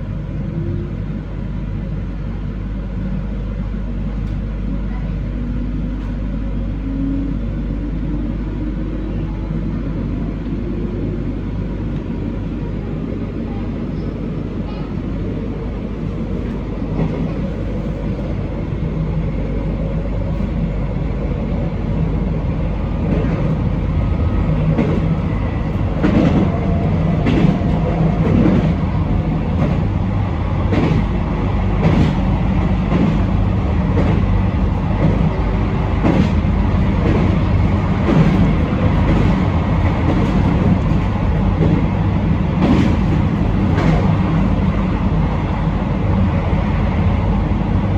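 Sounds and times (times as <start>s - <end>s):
train rumble: 0.0s - 47.9s
wheels clacking over rail joints: 24.6s - 30.0s.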